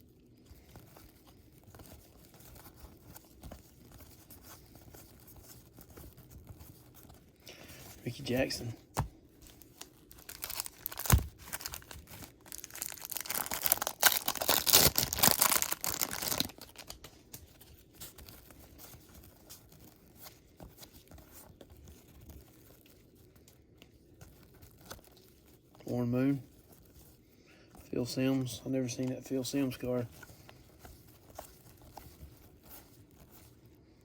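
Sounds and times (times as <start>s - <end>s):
cards being handled: 0.1s - 34.0s
wrapper crackling: 9.5s - 26.9s
wrapper tearing snap: 10.2s - 17.0s.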